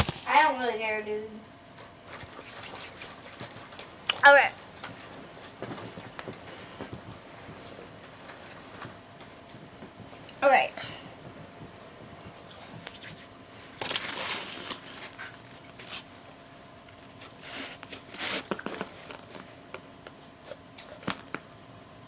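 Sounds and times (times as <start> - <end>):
soft handling rustles: 4.6 - 10.3, 11.2 - 16.3.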